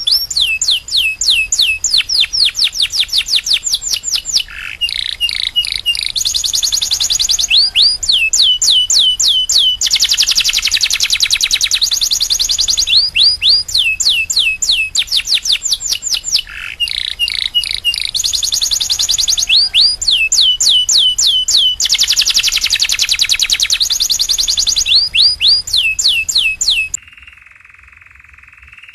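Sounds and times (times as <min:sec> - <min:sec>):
canary singing: 0:00.0 - 0:27.0.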